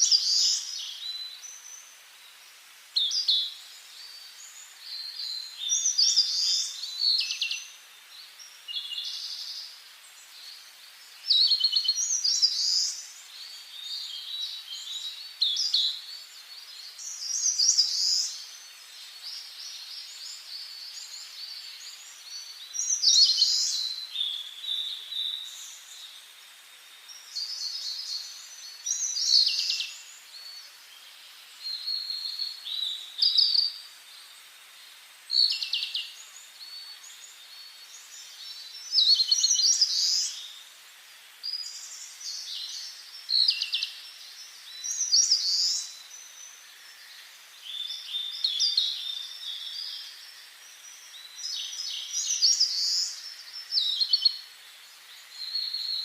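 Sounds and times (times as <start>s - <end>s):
faint background hiss: 0.0s - 56.0s
songbirds singing: 0.0s - 56.0s.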